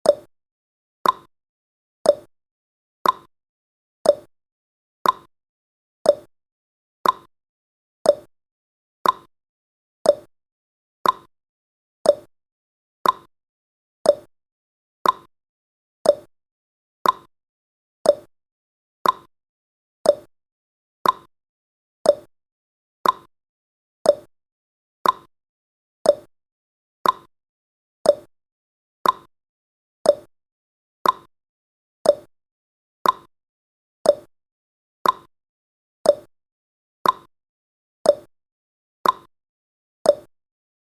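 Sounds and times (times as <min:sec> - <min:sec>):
clock ticking: 0:03.0 - 0:03.3, 0:05.0 - 0:05.3, 0:07.0 - 0:07.3, 0:09.0 - 0:09.3, 0:11.0 - 0:11.3, 0:13.0 - 0:13.3, 0:15.0 - 0:15.3, 0:16.1 - 0:16.3, 0:17.0 - 0:17.3, 0:18.1 - 0:18.3, 0:19.0 - 0:19.3, 0:20.1 - 0:20.3, 0:21.0 - 0:21.3, 0:22.1 - 0:22.3, 0:23.0 - 0:23.3, 0:24.1 - 0:24.3, 0:25.0 - 0:25.3, 0:26.1 - 0:26.3, 0:27.0 - 0:27.3, 0:29.0 - 0:29.3, 0:30.1 - 0:30.3, 0:31.0 - 0:31.3, 0:32.1 - 0:32.3, 0:33.0 - 0:33.3, 0:34.1 - 0:34.3, 0:35.0 - 0:35.3, 0:36.1 - 0:36.3, 0:37.0 - 0:37.3, 0:38.1 - 0:38.3, 0:39.0 - 0:39.3, 0:40.1 - 0:40.3.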